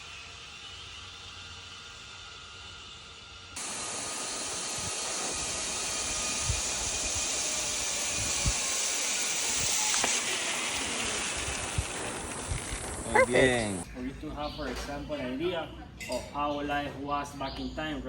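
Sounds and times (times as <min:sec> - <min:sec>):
water rushing down a slide: 0:05.2 - 0:13.1.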